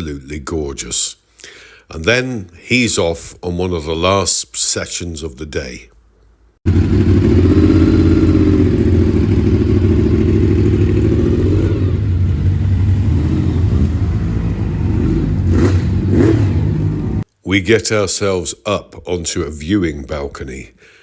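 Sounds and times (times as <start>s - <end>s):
motorcycle engine running: 6.7s - 17.2s.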